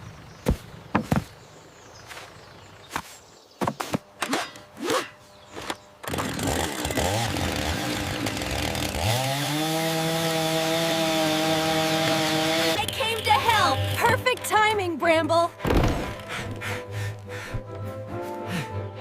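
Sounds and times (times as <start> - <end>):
cartoon chainsaw motor: 4.2 - 14.5.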